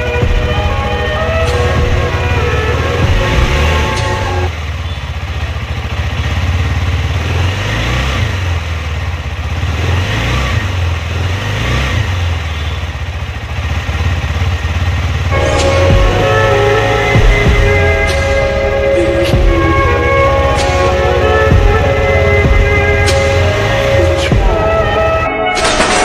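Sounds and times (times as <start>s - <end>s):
background music: 0.0s - 4.5s, 15.3s - 26.0s
motorcycle engine rumbling: 0.0s - 25.3s.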